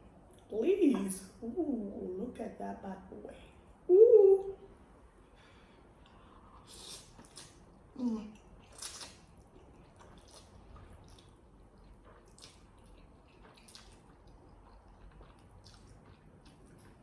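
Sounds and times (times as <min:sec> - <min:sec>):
wet chewing mouth sounds: 0:06.0 - 0:17.0.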